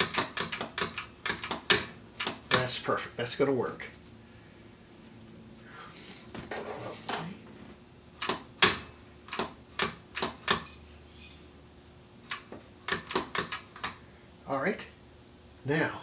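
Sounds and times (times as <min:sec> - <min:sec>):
mechanism clicks and clacks: 0:00.0 - 0:02.8, 0:08.2 - 0:10.8, 0:12.2 - 0:14.0.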